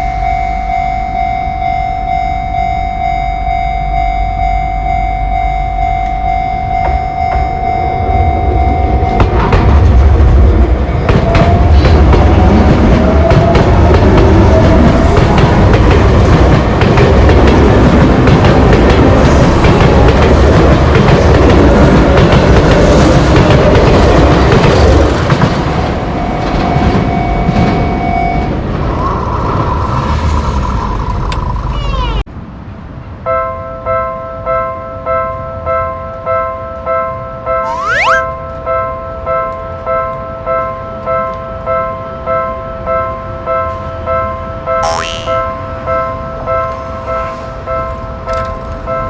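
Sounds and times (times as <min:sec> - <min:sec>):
level crossing warning bell: 0:00.0 - 0:09.4, 0:26.1 - 0:28.5
train wheels clattering on rails: 0:09.0 - 0:29.0.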